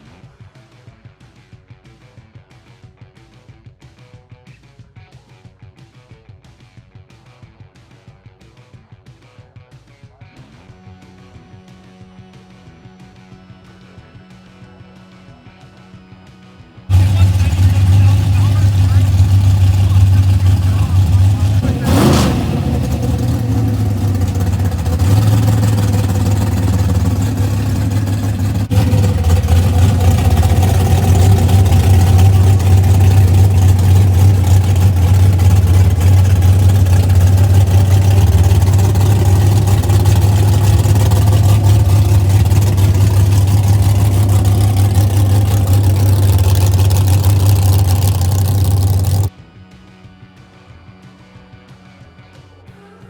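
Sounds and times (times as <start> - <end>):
vehicle engine rumbling: 16.9 - 49.3.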